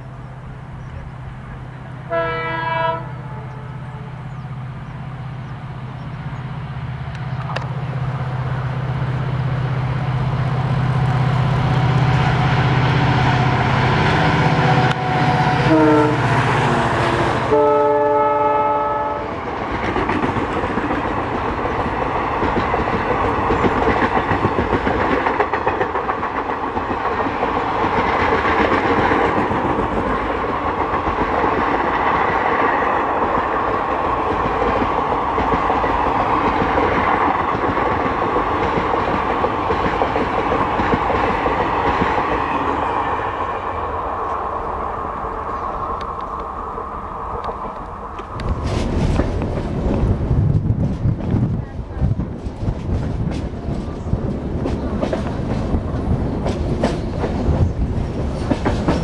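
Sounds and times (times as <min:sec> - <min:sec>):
diesel locomotive engine: 0:00.0 - 0:59.0
train horn: 0:02.0 - 0:04.2, 0:14.3 - 0:19.5
train wheels clattering on rails: 0:19.3 - 0:43.0, 0:47.4 - 0:59.0.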